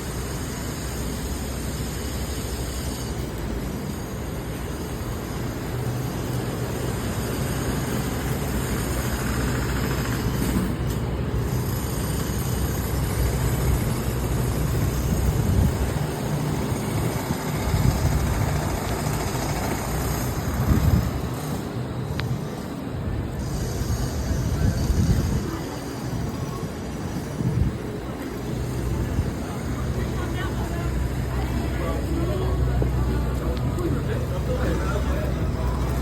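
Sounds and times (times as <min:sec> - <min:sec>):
city traffic rumble: 0:00.0 - 0:36.0.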